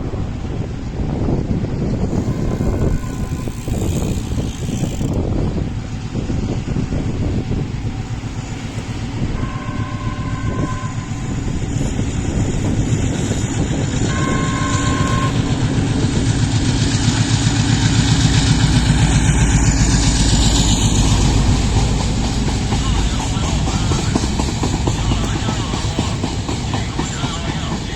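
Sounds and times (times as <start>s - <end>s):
train rumble and wheel clatter: 0.0s - 27.9s
train horn two-note blasts: 2.1s - 4.4s, 9.4s - 11.5s, 14.0s - 16.0s.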